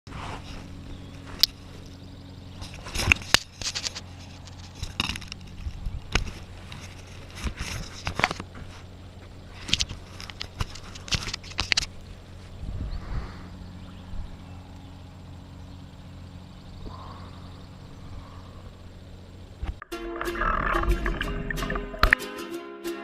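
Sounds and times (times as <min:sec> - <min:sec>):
steady low hum: 0:00.1 - 0:22.2.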